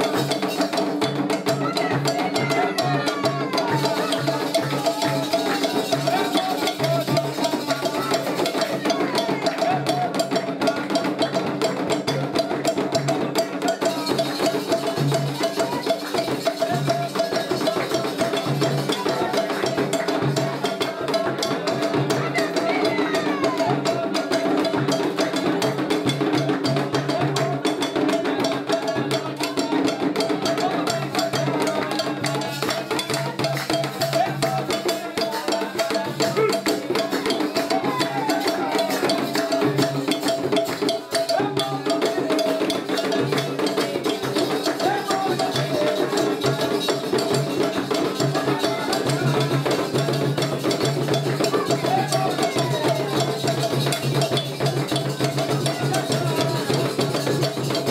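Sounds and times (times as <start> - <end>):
hand drums and percussion: 0.0 - 57.9
voices: 0.0 - 57.9.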